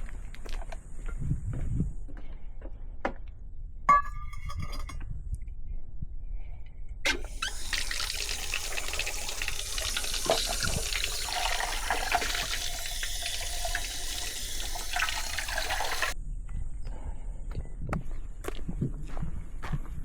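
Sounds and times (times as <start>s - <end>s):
water pouring: 7.1s - 16.2s.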